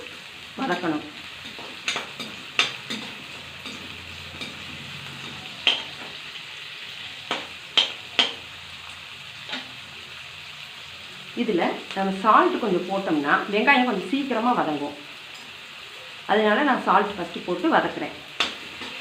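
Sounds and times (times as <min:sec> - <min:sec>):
onions sizzling in oil: 0:00.0 - 0:19.0
utensil clacking against pan: 0:00.7 - 0:06.2, 0:07.3 - 0:08.4.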